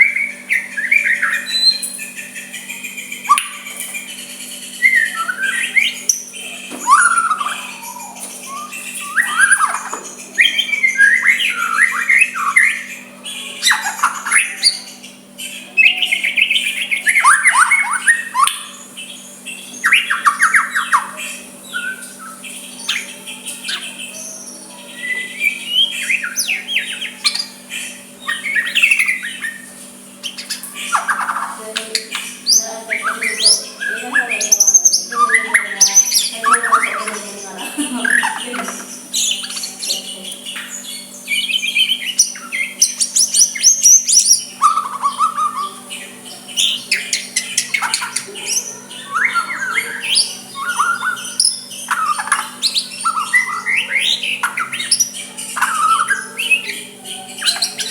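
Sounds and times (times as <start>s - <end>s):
bird singing whistles and chatter: 0.0s - 57.9s
steady low hum: 0.0s - 57.9s.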